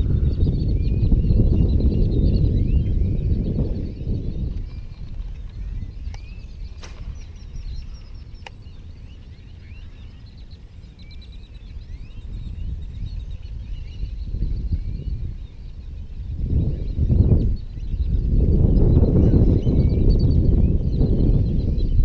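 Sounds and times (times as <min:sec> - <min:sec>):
birds chirping: 0:00.0 - 0:22.0
steady low rumble: 0:00.0 - 0:22.0
sharp clicks: 0:08.4 - 0:08.6.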